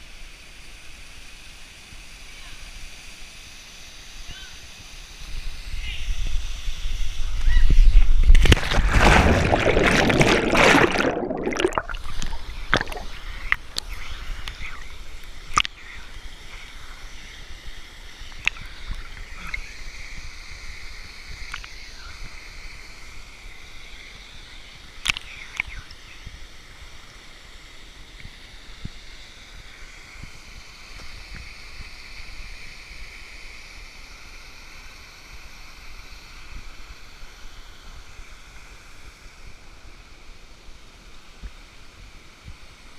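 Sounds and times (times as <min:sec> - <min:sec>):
waterfall and stream rushing: 0:06.8 - 0:20.5.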